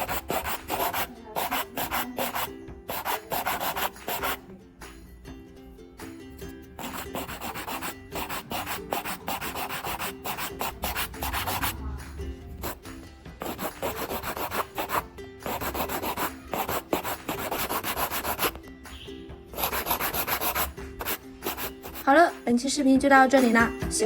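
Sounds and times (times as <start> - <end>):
nail file rasping on fingernails: 0.0 - 4.4, 6.8 - 11.8, 13.4 - 18.6, 19.6 - 22.1.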